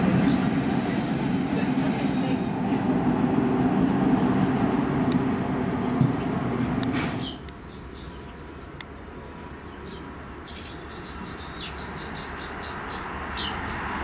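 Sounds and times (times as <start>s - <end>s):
high wheel squeal: 0.0s - 4.4s, 6.2s - 7.4s
train wheels rumbling on rail: 0.0s - 8.1s.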